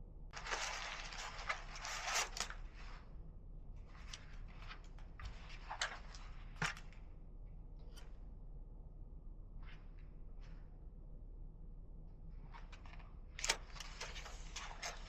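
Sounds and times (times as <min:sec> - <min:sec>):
packaging rustling and crinkling: 0:00.4 - 0:03.0, 0:13.5 - 0:15.0.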